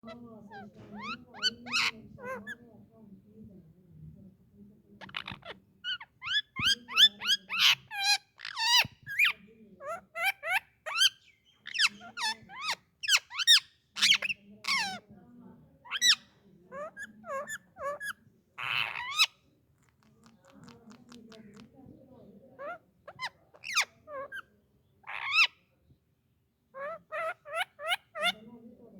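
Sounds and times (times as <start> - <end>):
parakeet chirping and squawking: 0.5 - 2.6, 5.0 - 9.3, 9.9 - 15.0, 15.9 - 21.7, 22.6 - 25.6, 26.8 - 28.4.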